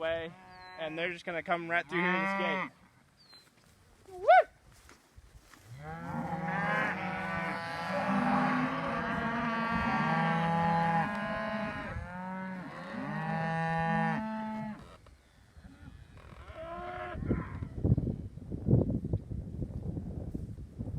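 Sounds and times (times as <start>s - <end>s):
cattle mooing: 5.8s - 14.8s.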